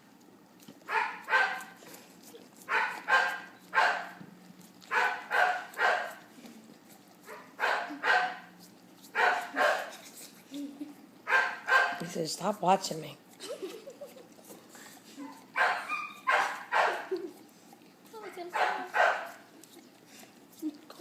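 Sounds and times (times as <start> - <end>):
dog barking: 0.9 - 1.8, 2.7 - 4.2, 4.9 - 6.2, 7.3 - 8.5, 9.2 - 9.9, 11.3 - 12.0, 15.2 - 17.1, 18.5 - 19.4.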